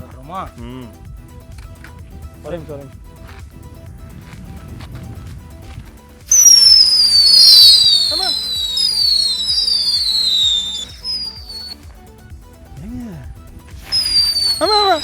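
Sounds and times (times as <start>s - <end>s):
firework whistles falling in pitch: 6.3s - 11.8s, 13.8s - 15.0s.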